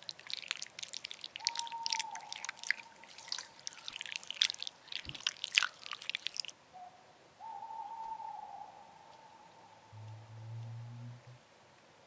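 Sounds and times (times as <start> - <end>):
slime squelching: 0.0 - 6.5.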